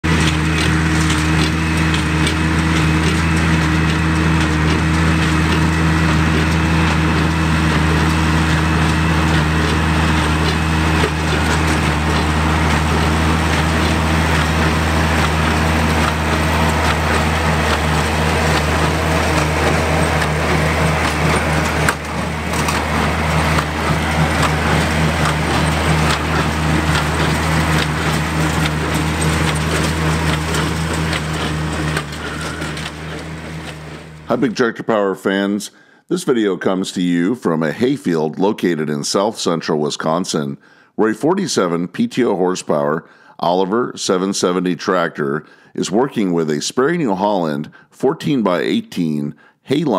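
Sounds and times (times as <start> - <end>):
tractor engine running under load: 0.0 - 34.7
baler crunching through hay: 0.1 - 34.4.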